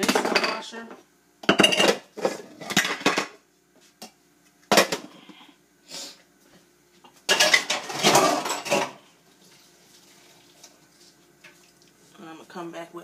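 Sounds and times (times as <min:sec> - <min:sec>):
dishes clattering: 0:00.0 - 0:00.6, 0:01.4 - 0:03.4, 0:07.3 - 0:09.0.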